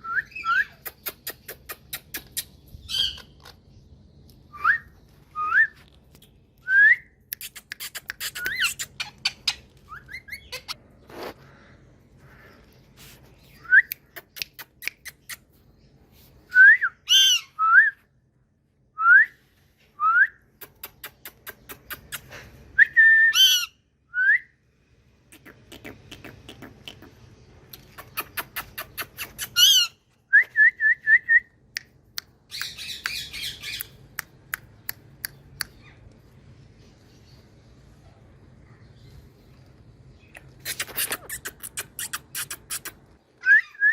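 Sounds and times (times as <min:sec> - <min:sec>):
parakeet sharp clicks: 0:07.3 - 0:09.2, 0:14.0 - 0:15.4
parakeets whistling: 0:08.2 - 0:10.8.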